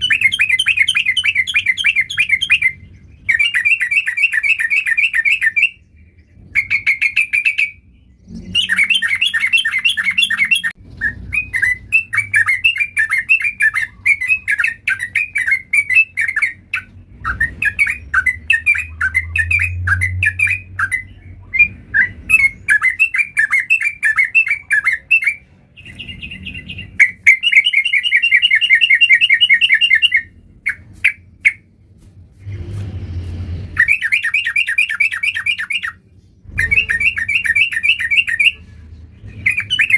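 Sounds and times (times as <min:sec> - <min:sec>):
bulbul singing: 0:00.0 - 0:31.7, 0:33.8 - 0:39.9
low rumble: 0:31.7 - 0:33.9.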